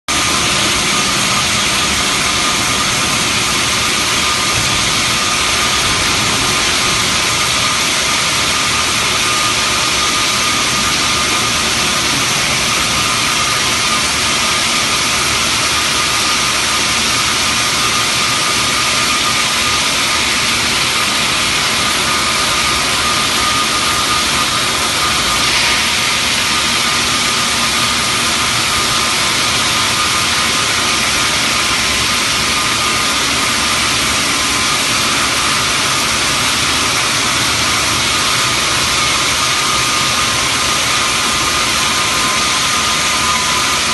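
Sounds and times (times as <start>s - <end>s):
bandsaw cutting stone: 17.9s - 33.5s.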